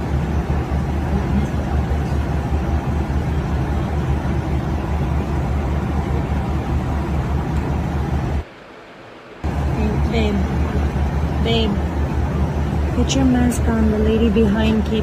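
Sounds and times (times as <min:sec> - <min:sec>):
airliner cabin engine roar: 0:00.0 - 0:15.0.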